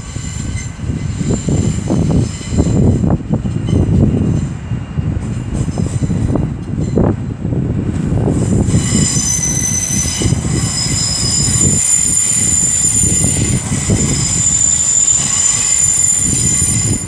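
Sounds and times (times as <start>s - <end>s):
train rumbling: 0.0s - 17.0s
high-pitched squeal: 8.4s - 17.0s.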